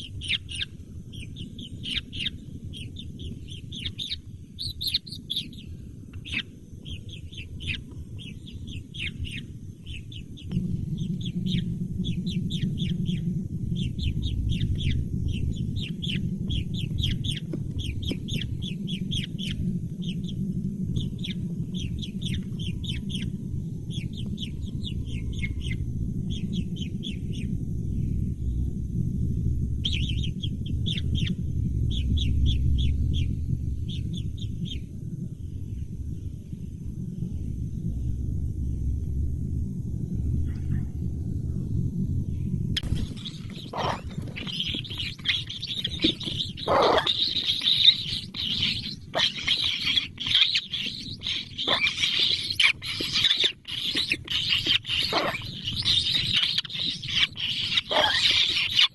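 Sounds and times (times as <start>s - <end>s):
baby birds chirping: 0.0s - 13.2s, 13.8s - 20.2s, 21.0s - 23.3s, 29.9s - 31.3s, 42.8s - 58.9s
low rumble: 0.0s - 58.9s.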